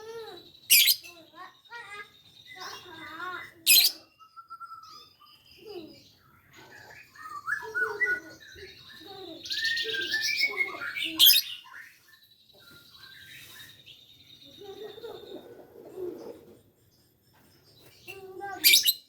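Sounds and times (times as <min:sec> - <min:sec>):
lovebird chirping and squawking: 0:00.0 - 0:04.2, 0:04.8 - 0:16.7, 0:17.8 - 0:19.0.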